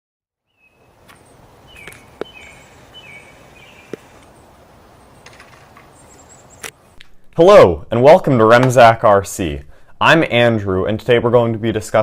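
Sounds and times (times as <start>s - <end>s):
faint birds chirping: 0.4s - 7.0s.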